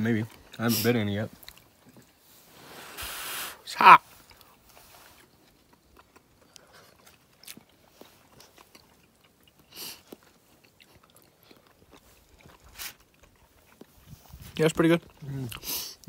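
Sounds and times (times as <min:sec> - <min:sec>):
close-up chewing with mouth clicks: 0:01.3 - 0:02.4, 0:04.1 - 0:16.0
short rush of noise: 0:02.6 - 0:03.6.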